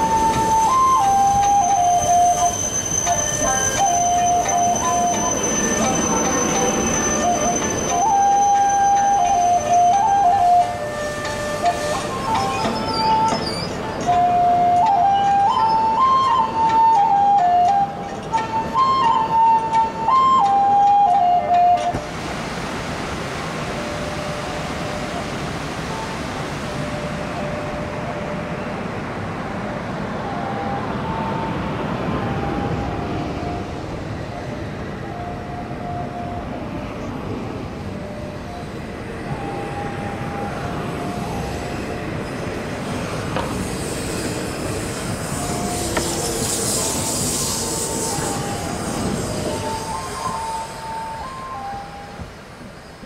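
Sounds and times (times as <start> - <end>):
train rumbling on rails: 0.0 - 53.0
bright hiss: 41.2 - 53.0.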